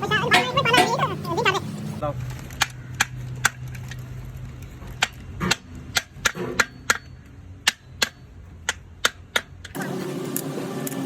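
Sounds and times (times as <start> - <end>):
hammer striking metal: 5.0 - 9.8.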